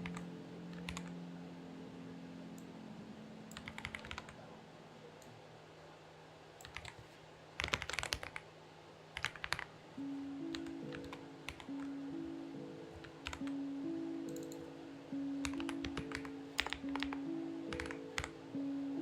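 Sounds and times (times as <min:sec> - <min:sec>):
mechanical keyboard typing: 0:00.0 - 0:01.1, 0:03.5 - 0:04.4, 0:06.6 - 0:07.0, 0:07.6 - 0:08.5, 0:09.2 - 0:09.7, 0:10.5 - 0:11.9, 0:12.9 - 0:13.6, 0:15.4 - 0:18.3
soft background music: 0:00.0 - 0:04.9, 0:10.0 - 0:19.0.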